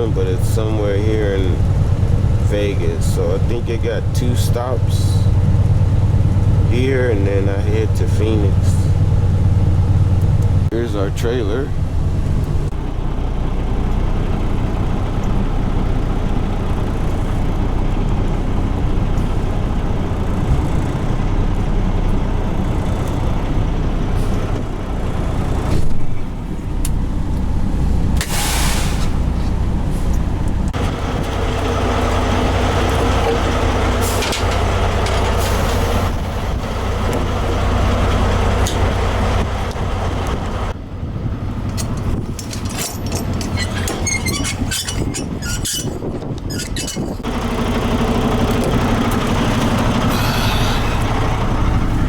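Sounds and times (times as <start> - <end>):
truck diesel engine idling: 0.0 - 52.0
air brake hissing: 28.2 - 29.3, 50.0 - 51.2.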